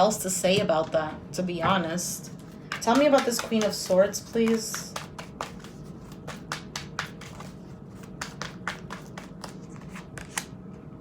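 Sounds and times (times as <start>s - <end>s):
cards being shuffled: 2.4s - 10.5s.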